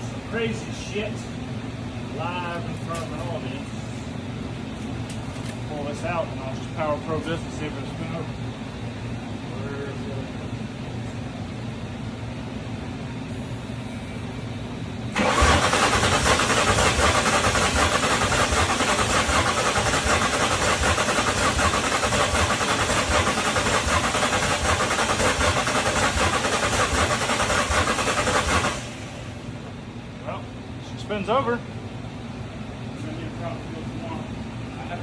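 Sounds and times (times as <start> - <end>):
car starter cranking engine: 15.2 - 29.3.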